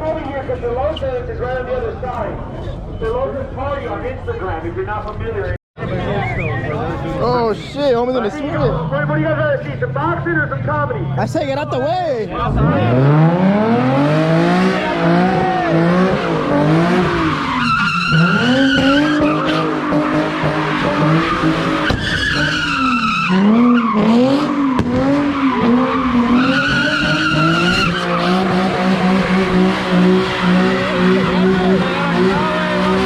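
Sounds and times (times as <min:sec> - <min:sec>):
car engine revving: 0:12.3 - 0:33.0
tires squealing: 0:12.3 - 0:33.0.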